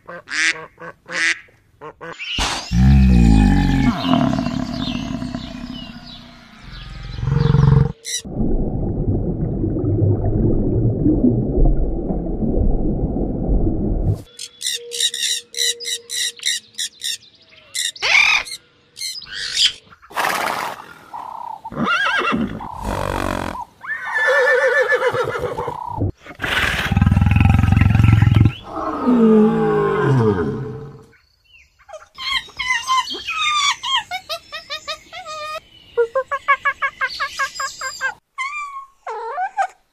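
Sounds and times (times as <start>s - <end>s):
high chattering calls: 2.1s - 8.3s, 14.3s - 19.8s
horses whinnying and snorting: 2.7s - 5.9s, 21.6s - 31.1s
parrots squawking: 14.4s - 17.2s, 17.8s - 19.8s.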